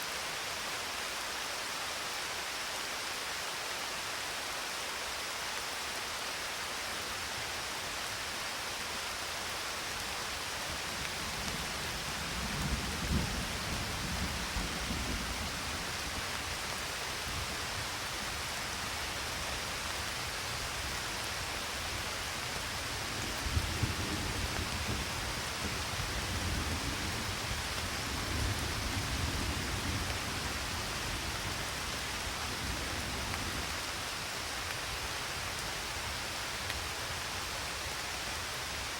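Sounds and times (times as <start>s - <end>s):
steady rain hissing: 0.0s - 38.9s
low rolling thunder: 11.2s - 16.2s, 23.1s - 31.8s.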